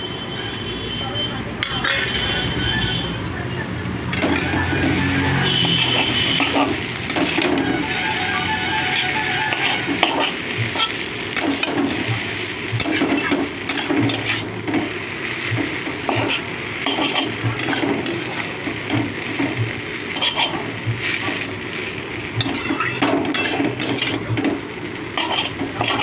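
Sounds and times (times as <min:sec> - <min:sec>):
food sizzling in a pan: 0:04.0 - 0:26.0
utensil scraping and knocking pan: 0:09.5 - 0:14.9, 0:25.2 - 0:26.0.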